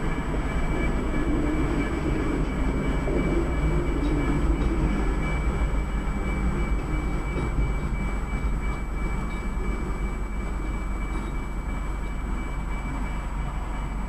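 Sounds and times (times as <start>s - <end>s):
freight train rumble: 0.0s - 14.0s.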